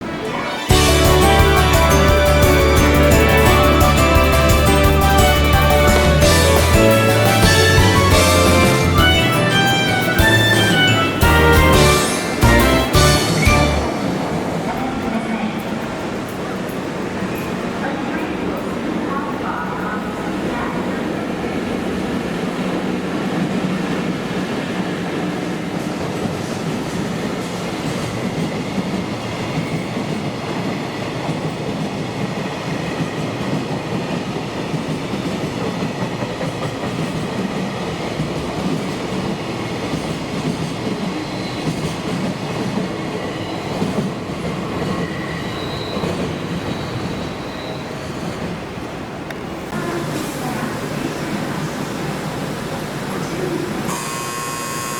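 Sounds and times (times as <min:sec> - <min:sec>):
train wheels clattering on rails: 0:21.6 - 0:48.8
faint high wheel squeals: 0:45.2 - 0:48.2, 0:53.9 - 0:54.9.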